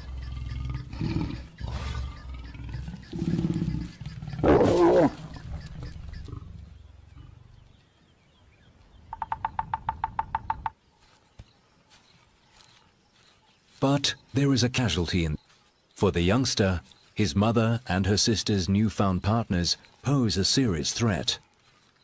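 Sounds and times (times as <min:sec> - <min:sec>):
lions growling and snarling: 0:00.0 - 0:07.7.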